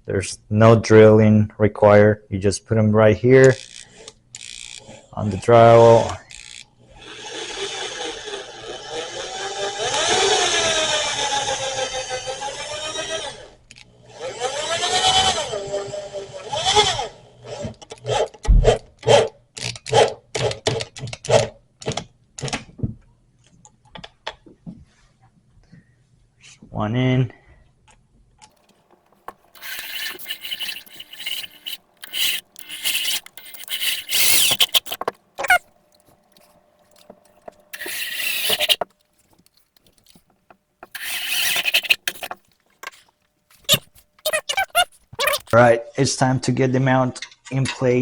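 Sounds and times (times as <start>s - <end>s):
anchor grinding into drywall: 29.0s - 35.7s, 36.4s - 45.6s
power driver motor whir: 29.1s - 40.2s, 40.8s - 43.0s, 43.6s - 45.6s.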